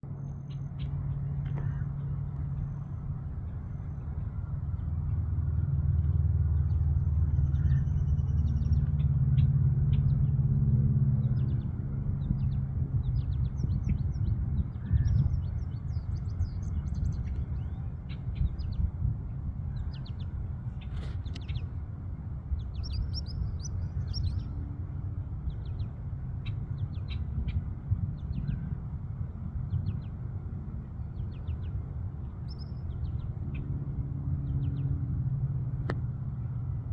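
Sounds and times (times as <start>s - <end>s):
low pitched hum: 0.0s - 36.9s
steady low rumble: 0.0s - 36.9s
small birds chirping: 11.2s - 33.7s.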